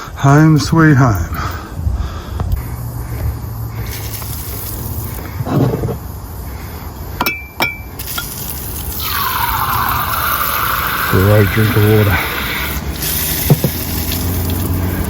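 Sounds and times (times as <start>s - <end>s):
glass clinking: 7.2s - 8.4s.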